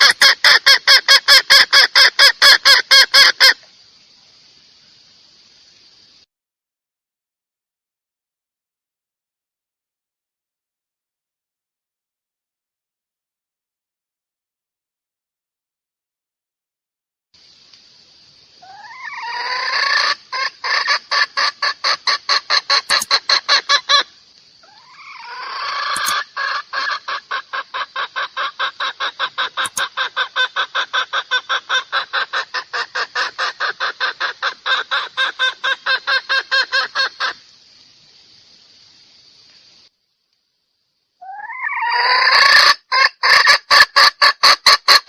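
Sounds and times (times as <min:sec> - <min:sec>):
hen cackling: 0:00.0 - 0:03.7, 0:18.6 - 0:37.5, 0:41.2 - 0:45.0.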